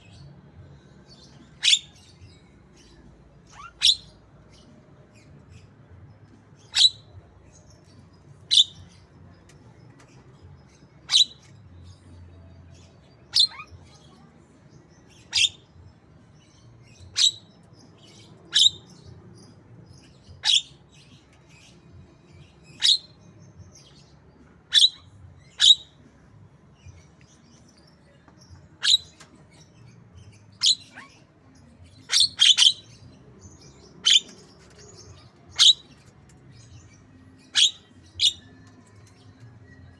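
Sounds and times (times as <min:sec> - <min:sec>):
bird chirping: 0:15.1 - 0:26.2, 0:26.8 - 0:39.9.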